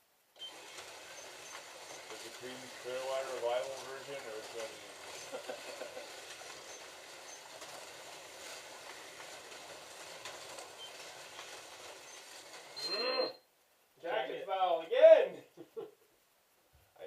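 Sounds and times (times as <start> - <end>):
slot cars whirring on track: 0.4 - 13.2.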